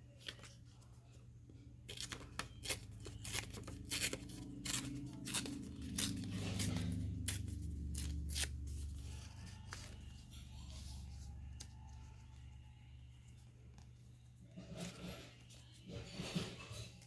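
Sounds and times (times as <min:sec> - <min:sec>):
paper snipping and ripping: 0:01.9 - 0:10.1.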